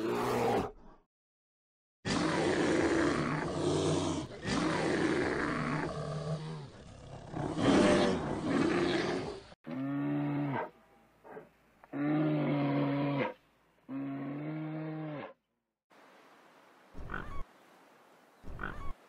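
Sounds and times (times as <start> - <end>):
bears growling and roaring: 2.1 - 15.4.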